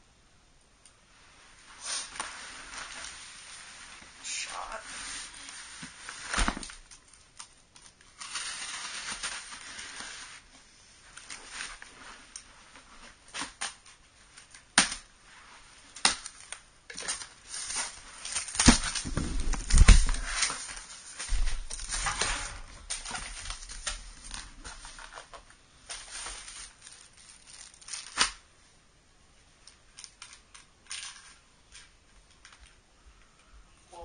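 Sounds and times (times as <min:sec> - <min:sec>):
heavy thumps: 0:18.6 - 0:20.4.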